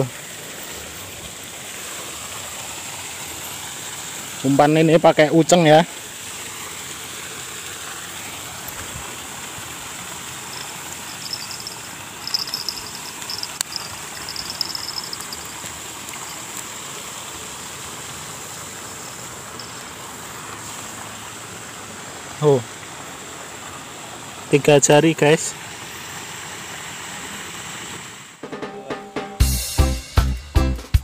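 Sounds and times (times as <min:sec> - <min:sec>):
river flowing: 0:00.0 - 0:24.6
high insect drone: 0:09.6 - 0:17.1.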